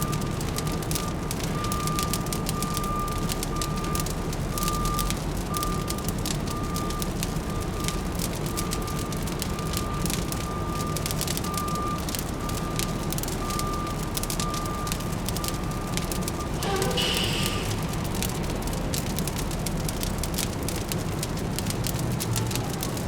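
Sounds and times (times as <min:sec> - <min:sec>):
fireplace crackling: 0:14.0 - 0:23.0
low city hum: 0:15.1 - 0:23.0
faint high-pitched tone: 0:16.6 - 0:18.3.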